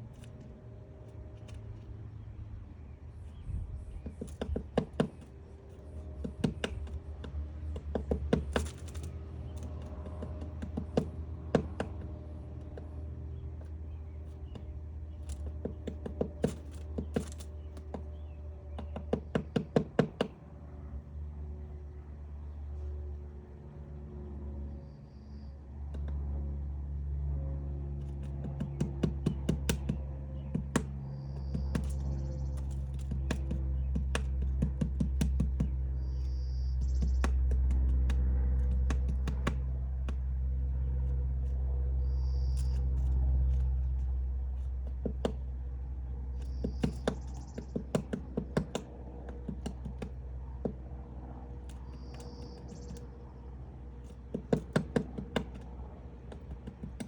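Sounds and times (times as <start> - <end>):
woodpecker tapping on wood: 0.0 - 2.1, 2.8 - 20.5, 25.8 - 26.4, 27.9 - 57.0
low steady rumble: 0.0 - 57.0.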